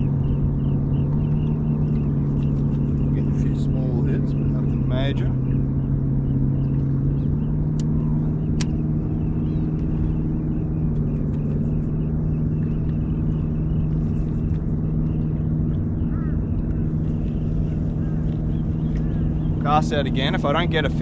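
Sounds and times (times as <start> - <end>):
electric trolling motor humming: 0.0 - 21.0
sharp clicks: 7.7 - 9.0.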